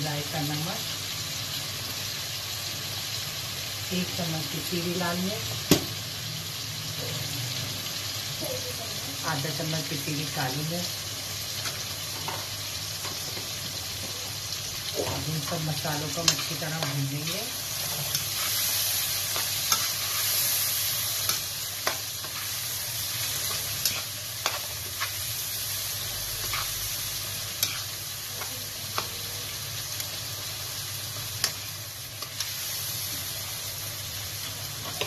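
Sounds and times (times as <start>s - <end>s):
meat sizzling in hot oil: 0.0s - 35.0s
spatula scraping a wok: 15.0s - 29.1s.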